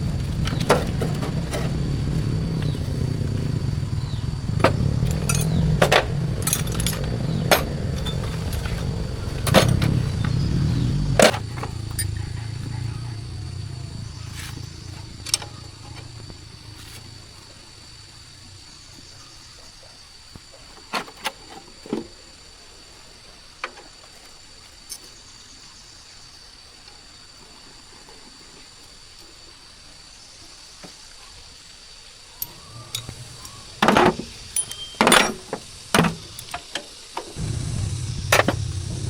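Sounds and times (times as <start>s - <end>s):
faint steady hiss: 0.0s - 39.0s
sharp clicks and knocks: 4.5s - 10.4s.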